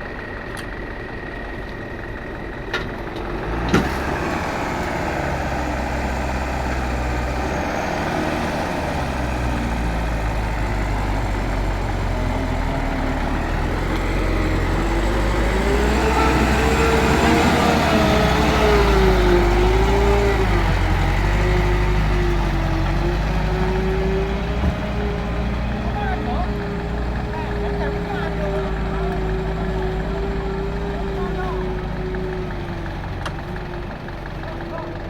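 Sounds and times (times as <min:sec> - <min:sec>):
diesel truck engine running: 0:00.0 - 0:35.0.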